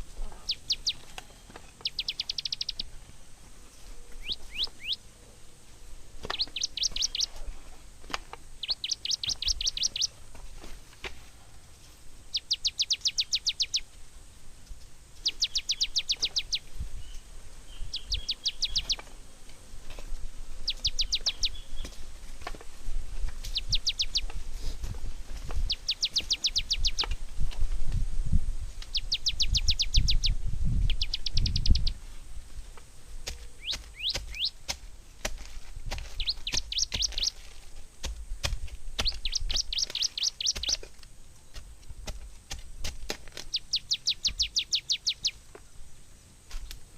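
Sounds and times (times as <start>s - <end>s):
small bird trilling: 0.4s - 1.0s, 1.8s - 2.9s, 4.2s - 5.0s, 6.2s - 7.3s, 8.6s - 10.1s, 12.3s - 13.8s, 15.2s - 16.7s, 17.7s - 19.0s, 20.6s - 21.9s, 23.5s - 24.3s, 25.7s - 27.1s, 28.9s - 32.0s, 33.6s - 34.6s, 36.2s - 37.4s, 39.0s - 40.8s, 43.5s - 45.4s.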